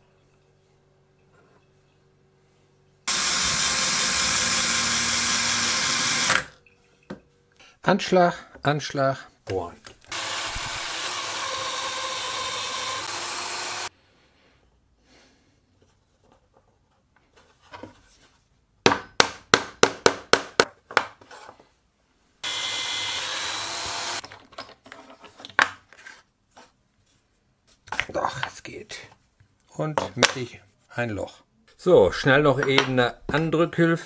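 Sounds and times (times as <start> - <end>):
electric drill boring into wood: 3.1 - 6.5, 10.1 - 13.9, 22.4 - 24.2.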